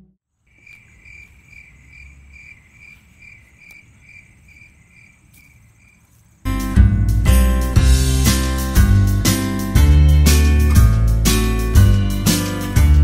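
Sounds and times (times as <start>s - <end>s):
cricket chirping: 0.3s - 6.5s.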